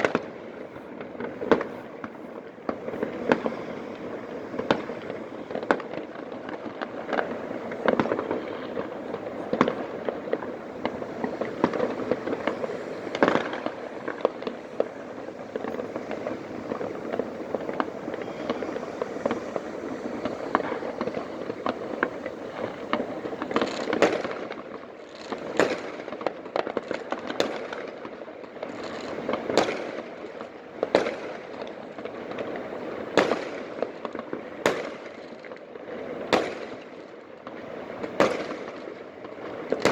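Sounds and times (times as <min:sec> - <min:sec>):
loud firework bangs: 0:00.0 - 0:35.4, 0:36.1 - 0:39.9
fireworks crackling and popping: 0:00.0 - 0:39.9.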